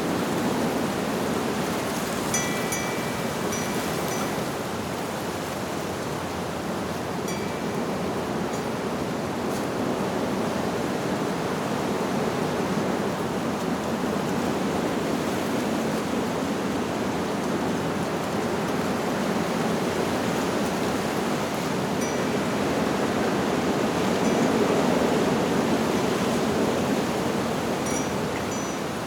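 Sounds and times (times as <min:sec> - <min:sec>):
wind rushing through leaves: 0:00.0 - 0:29.0
wind chime tone: 0:02.3 - 0:04.5, 0:07.3 - 0:08.1, 0:21.9 - 0:25.3, 0:27.8 - 0:29.0.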